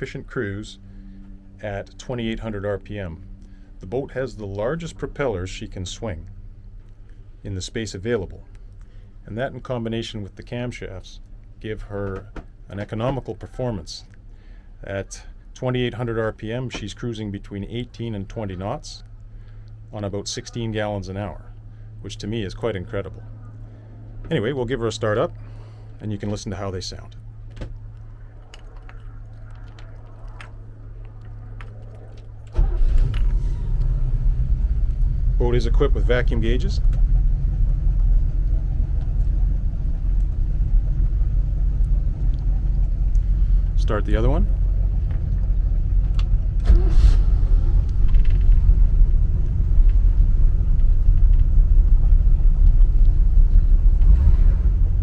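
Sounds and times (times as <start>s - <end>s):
steady low hum: 0.0s - 55.0s
boat engines idling: 29.9s - 55.0s.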